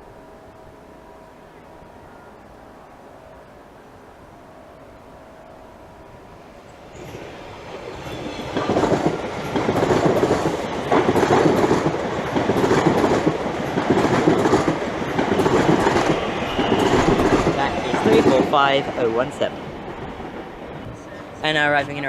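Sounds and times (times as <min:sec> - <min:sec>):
train wheels clattering over joints: 0:07.9 - 0:21.1.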